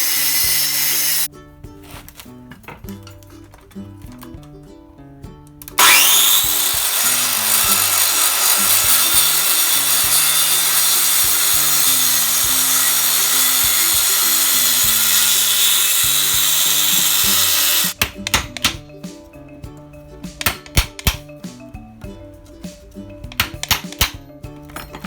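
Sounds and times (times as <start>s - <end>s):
power tool on metal: 0.0s - 1.3s, 5.7s - 18.0s
background music: 0.0s - 25.0s.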